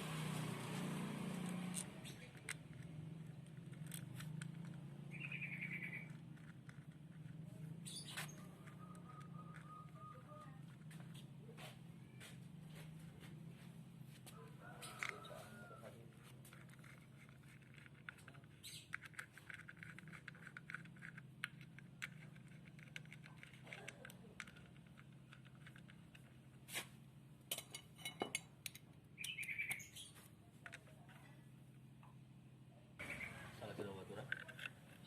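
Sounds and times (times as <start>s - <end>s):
birds chirping: 1.9s - 2.4s, 4.9s - 6.4s, 7.4s - 13.6s, 18.3s - 19.0s, 29.1s - 31.4s, 32.7s - 34.3s.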